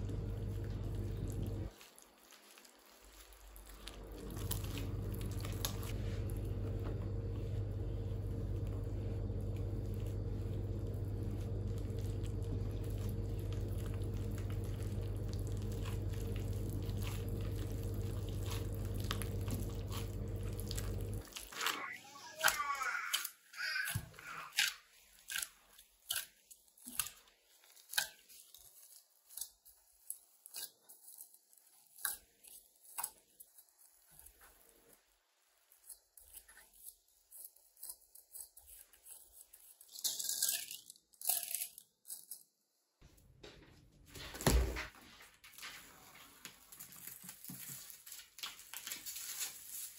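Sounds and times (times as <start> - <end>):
machine hum: 0.0 - 1.7, 3.6 - 23.8.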